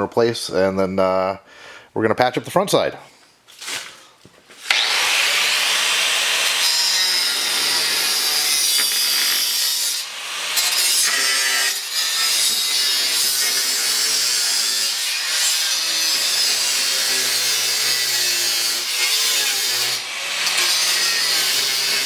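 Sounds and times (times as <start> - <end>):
power tool cutting steel: 4.6 - 22.0.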